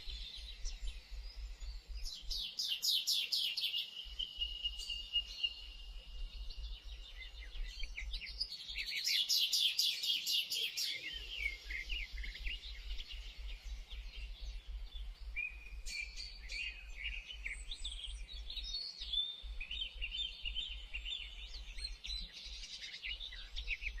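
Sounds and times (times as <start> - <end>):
songbirds chirping and trilling: 0.0 - 24.0.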